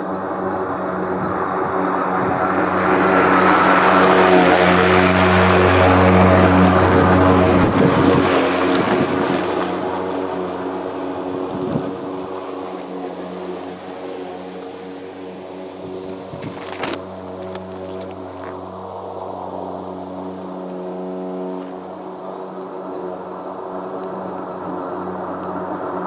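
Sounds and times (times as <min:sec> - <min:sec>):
electric lawnmower whirring: 0:00.0 - 0:26.0.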